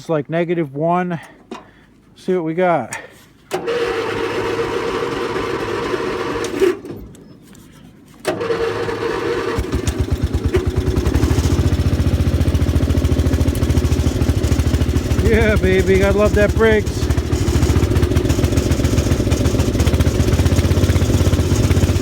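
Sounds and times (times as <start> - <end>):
electric starter cranking: 3.5 - 7.2, 8.2 - 22.0
engine running steadily: 8.2 - 22.0.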